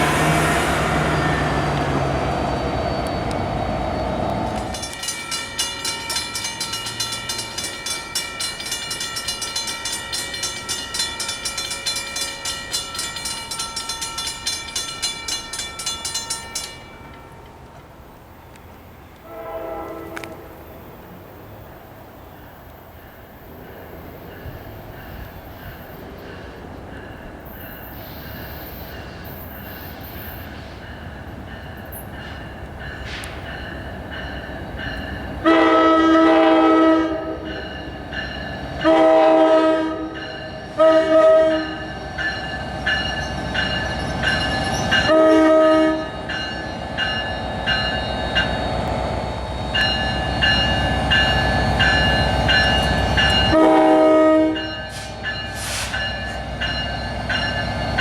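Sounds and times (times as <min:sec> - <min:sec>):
train rumbling: 0:00.0 - 0:58.0
train horn blasts: 0:19.2 - 0:20.6, 0:35.4 - 0:37.5, 0:38.8 - 0:42.0, 0:45.0 - 0:46.3, 0:53.4 - 0:56.0.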